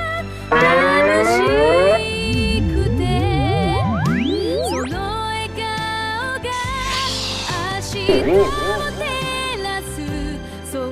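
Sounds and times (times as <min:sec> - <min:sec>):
background music: 0:00.0 - 0:10.9
rising pitched sound effect: 0:00.5 - 0:05.2, 0:08.1 - 0:09.1.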